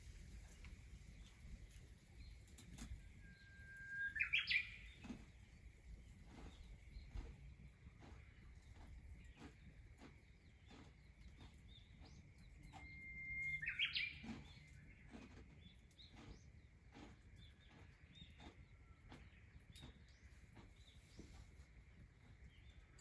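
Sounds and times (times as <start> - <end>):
bird whistling and chirping: 3.2 - 5.0, 12.7 - 14.6.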